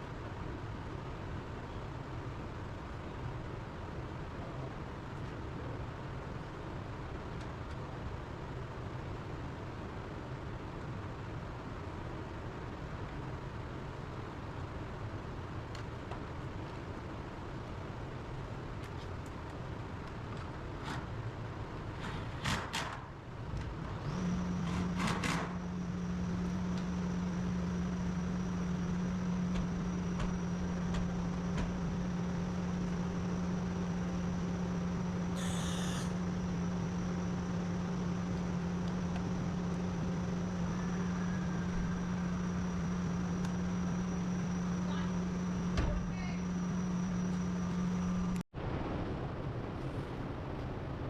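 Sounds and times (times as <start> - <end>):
machine humming and whining: 19.2 - 49.7.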